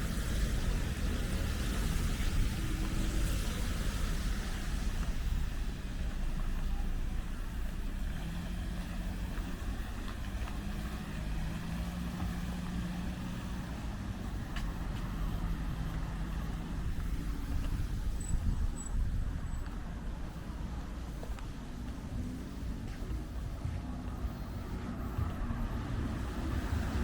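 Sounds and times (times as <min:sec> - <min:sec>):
vehicle engine rumble: 0:00.0 - 0:27.0.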